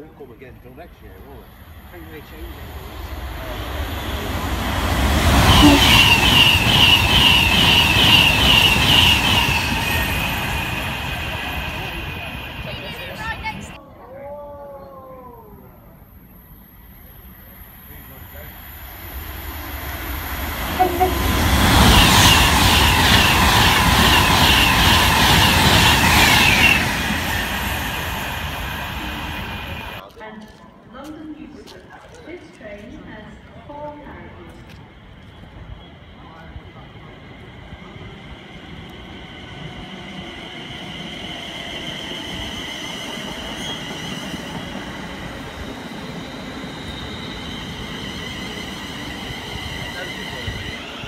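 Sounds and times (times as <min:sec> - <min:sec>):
train running: 0:00.6 - 0:13.8, 0:16.5 - 0:30.1, 0:31.7 - 0:51.0
short falling squeal: 0:43.4 - 0:44.5.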